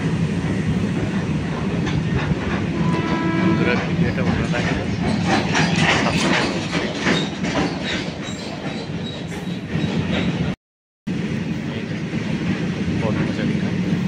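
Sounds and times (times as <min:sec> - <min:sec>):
freight train rumbling: 0:00.0 - 0:14.0
wheels clacking over rail joints: 0:00.4 - 0:10.6.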